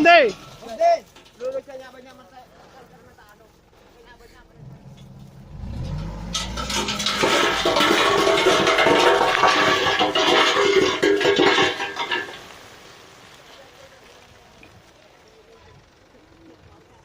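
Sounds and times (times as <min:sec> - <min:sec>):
sand and gravel sliding off: 0:00.3 - 0:15.5
truck engine revving: 0:03.6 - 0:10.6.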